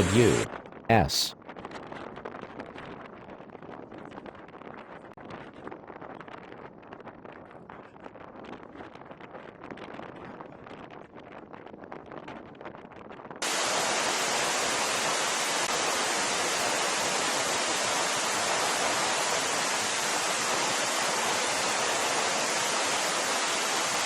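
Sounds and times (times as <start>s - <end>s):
steady hiss: 0.0s - 1.1s, 13.4s - 24.0s.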